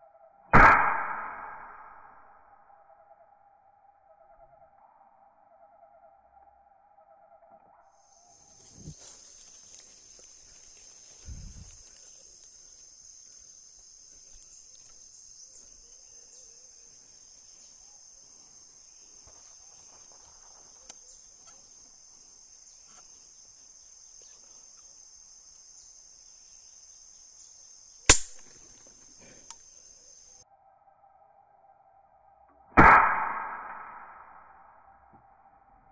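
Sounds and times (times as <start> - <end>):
air rifle shot: 0.6 - 2.1, 28.1 - 28.5, 32.8 - 34.4
high-pitched insect buzz: 8.1 - 20.2.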